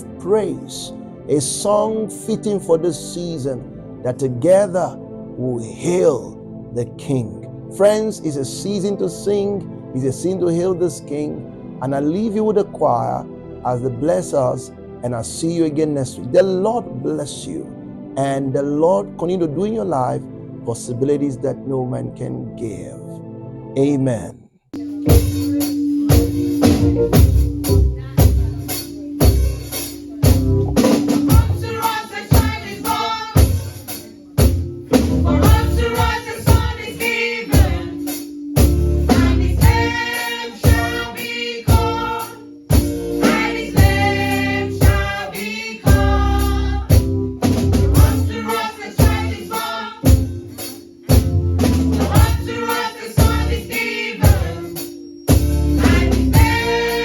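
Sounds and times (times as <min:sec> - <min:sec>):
drums beating: 0:24.8 - 0:50.3, 0:51.1 - 0:54.6, 0:55.3 - 0:57.0
choir singing gospel song: 0:30.8 - 0:34.0, 0:35.0 - 0:47.1, 0:47.8 - 0:51.2, 0:51.9 - 0:57.0
tambourine: 0:35.5 - 0:46.6, 0:48.0 - 0:51.4, 0:52.0 - 0:57.0.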